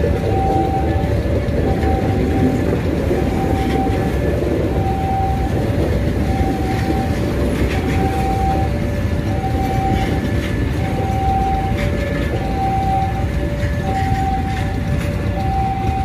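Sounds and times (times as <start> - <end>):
level crossing alarm tone: 0.0 - 16.0
train rumbling past: 0.0 - 16.0
wheel clacks over rail joints: 0.0 - 16.0.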